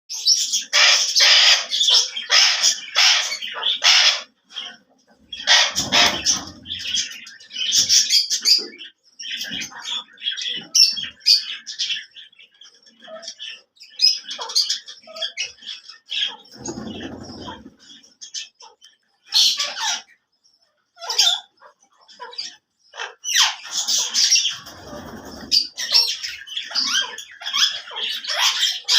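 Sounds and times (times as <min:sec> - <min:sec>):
parakeet screeching: 0:00.5 - 0:08.3, 0:14.0 - 0:18.5, 0:19.3 - 0:20.2, 0:21.0 - 0:28.9.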